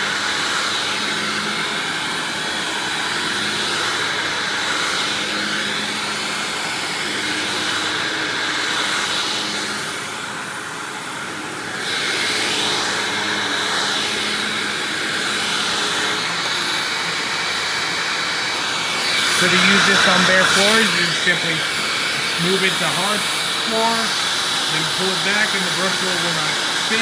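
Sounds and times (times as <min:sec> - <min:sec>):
upright vacuum running with whine: 0:00.0 - 0:27.0.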